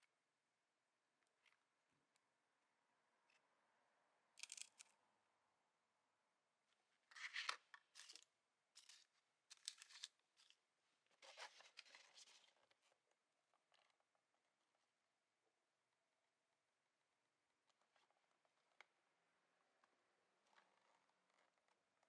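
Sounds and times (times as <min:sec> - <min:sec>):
faint scraping and crinkling: 0:06.7 - 0:15.0, 0:17.6 - 0:22.0.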